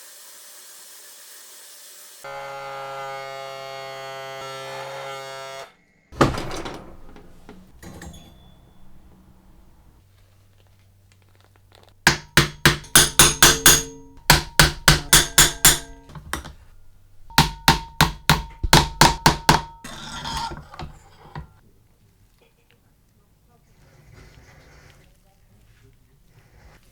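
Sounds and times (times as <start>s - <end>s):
hammer tapping on metal: 6.2s - 9.8s, 12.1s - 21.6s.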